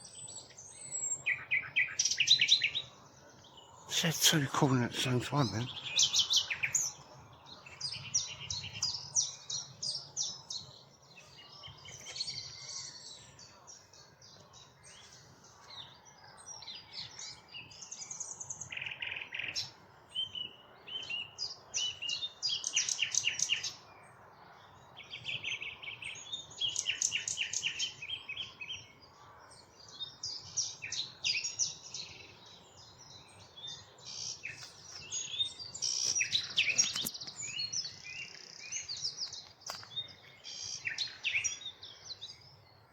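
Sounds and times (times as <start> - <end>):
nightingale singing: 0.0 - 24.0, 24.7 - 42.9.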